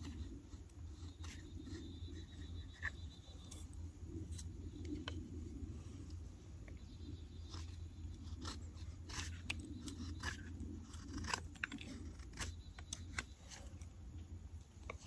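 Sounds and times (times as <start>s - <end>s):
carving blade cutting wood: 0.0s - 3.6s, 7.4s - 13.8s
steady low hum: 0.0s - 15.0s.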